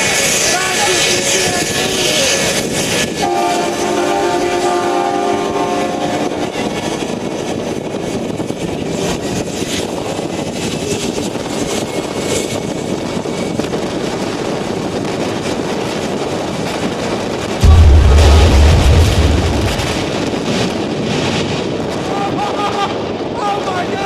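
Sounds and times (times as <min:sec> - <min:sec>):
jet engine running: 0:17.6 - 0:21.5.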